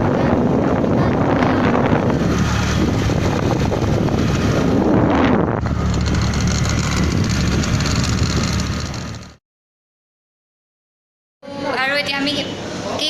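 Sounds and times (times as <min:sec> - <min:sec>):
vehicle running noise: 0:00.0 - 0:09.4
wind buffeting microphone: 0:00.0 - 0:09.4.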